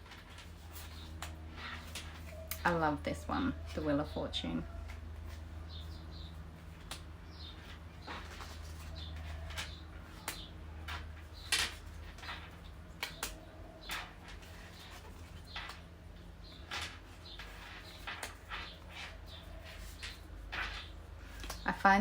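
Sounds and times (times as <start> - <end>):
low steady hum: 0.0 - 22.0
cards slapping and sliding: 12.9 - 15.8.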